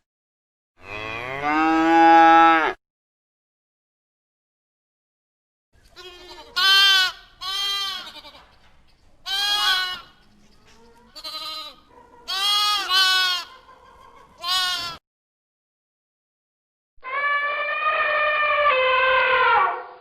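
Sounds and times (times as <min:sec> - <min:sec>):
goat bleating: 0:06.0 - 0:08.6, 0:09.2 - 0:10.2, 0:10.9 - 0:13.7, 0:14.4 - 0:15.0.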